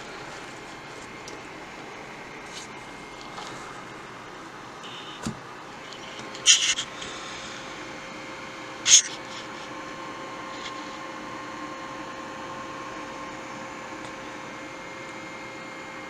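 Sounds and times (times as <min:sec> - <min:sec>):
faint steady tone: 0:00.0 - 0:16.0
radio static hiss: 0:00.0 - 0:16.0
sharp radio crackle: 0:04.8 - 0:07.8, 0:08.7 - 0:11.0.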